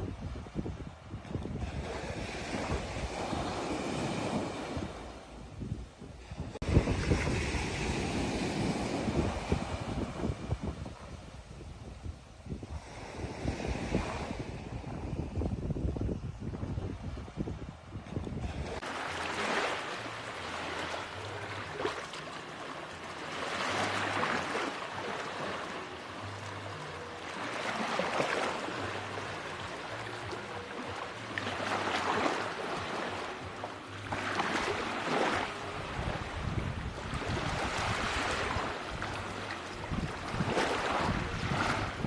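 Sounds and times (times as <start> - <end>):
waves breaking on beach: 1.6 - 5.4, 6.2 - 11.2, 18.4 - 42.0.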